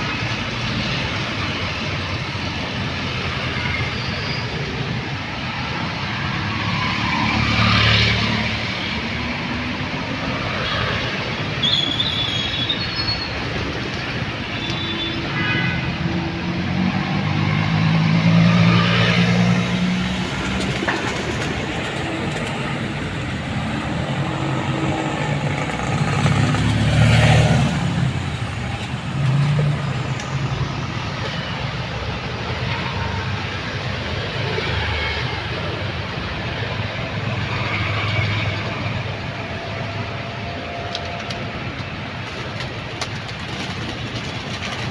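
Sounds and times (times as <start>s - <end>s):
traffic road noise: 0.0s - 44.9s
loud vehicle passing: 5.5s - 11.5s, 15.9s - 42.9s.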